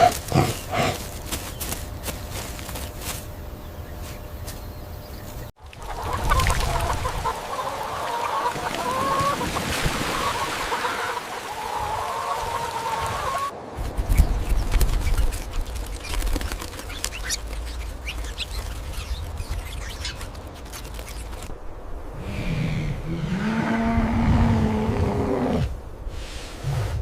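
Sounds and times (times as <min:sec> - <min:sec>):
rapid clicks and flutter: 0:13.8 - 0:21.6.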